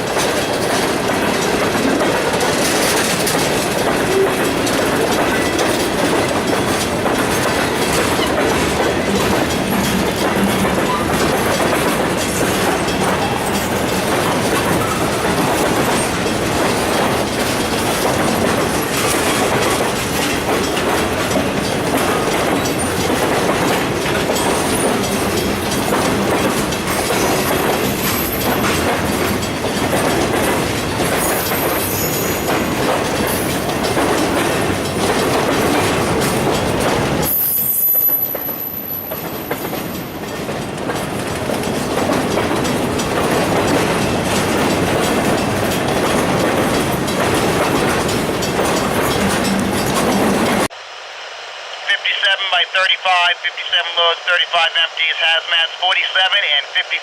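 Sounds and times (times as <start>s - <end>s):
wheels clicking over rail joints: 0.0s - 50.7s
freight train rumbling: 0.0s - 57.0s
high wheel squeal: 31.2s - 32.7s.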